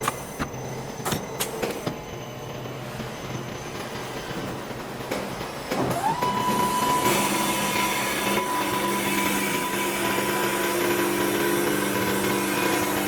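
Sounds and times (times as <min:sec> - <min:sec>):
wood lathe humming: 0:06.4 - 0:13.0.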